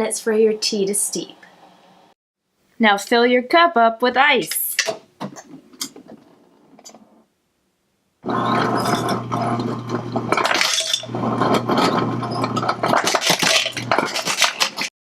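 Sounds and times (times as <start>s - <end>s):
ice dispenser motor humming: 8.2s - 14.9s
ice cubes clattering into a cup: 10.3s - 14.9s.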